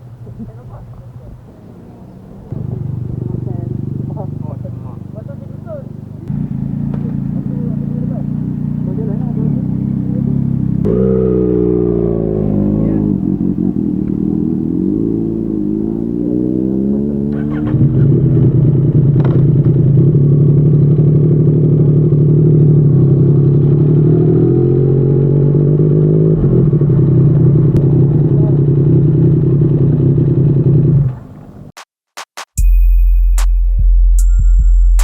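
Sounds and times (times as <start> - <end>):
motorcycle engine running: 0.0 - 31.7.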